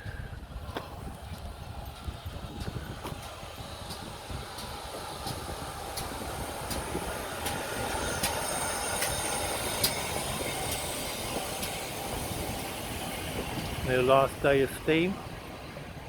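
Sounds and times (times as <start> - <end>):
steam train passing slowly: 0.0 - 16.0
wheels clicking over rail joints: 0.0 - 16.0
faint high wheel squeal: 6.7 - 14.6.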